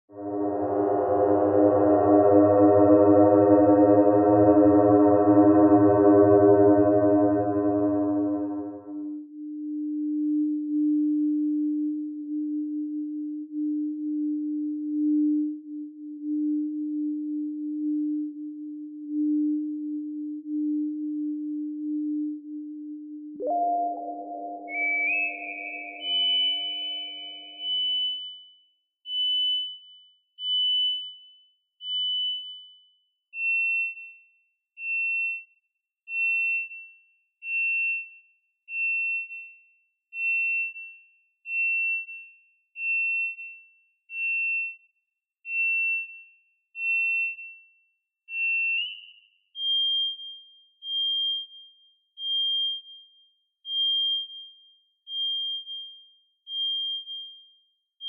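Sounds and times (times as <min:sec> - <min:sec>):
electronic bird-like chirps: 0:23.4 - 0:28.2.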